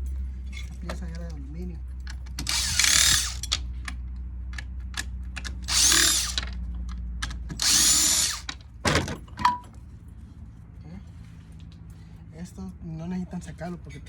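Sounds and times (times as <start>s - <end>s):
power drill whining: 2.4s - 3.6s, 5.6s - 6.6s, 7.6s - 8.6s.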